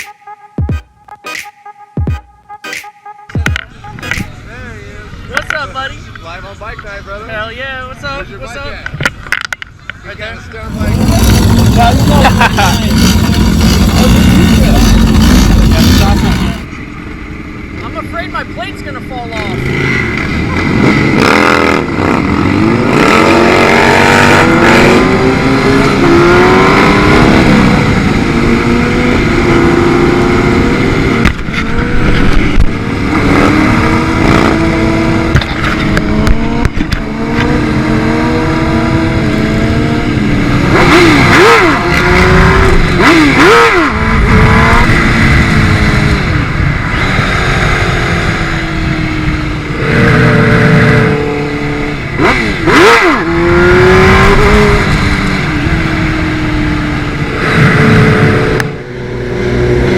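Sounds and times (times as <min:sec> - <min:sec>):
motorcycle engine accelerating: 0:10.6 - 0:17.0, 0:19.4 - 0:59.9
steady rushing noise: 0:10.6 - 0:29.5.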